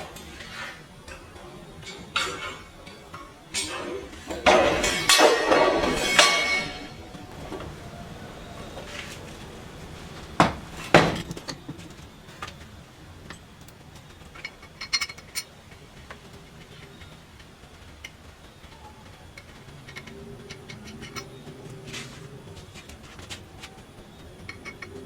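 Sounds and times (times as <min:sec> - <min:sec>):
loud metal strikes: 0:03.6 - 0:07.2
metal clinks: 0:10.7 - 0:21.9.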